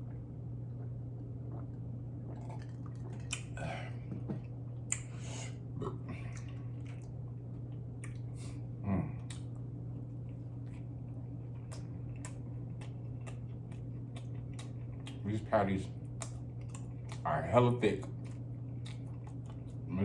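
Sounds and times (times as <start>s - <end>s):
chewing food close-up: 0.0s - 5.3s, 5.9s - 20.0s
low hum: 0.0s - 20.0s
wet mouth clicks and smacks: 2.3s - 3.5s, 4.9s - 5.1s, 11.6s - 15.2s
person humming mm: 8.8s - 9.3s.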